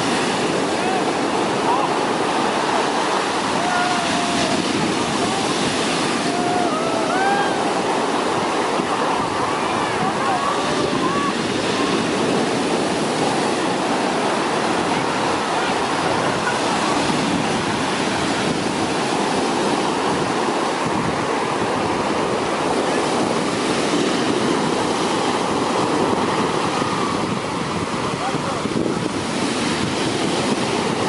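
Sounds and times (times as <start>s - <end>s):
sea waves breaking on beach: 0.0s - 31.0s.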